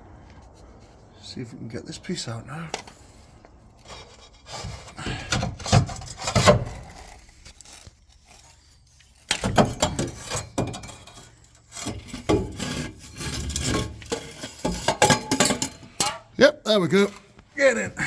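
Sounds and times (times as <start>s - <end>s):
metal pipe scraping and knocking: 3.8s - 16.4s.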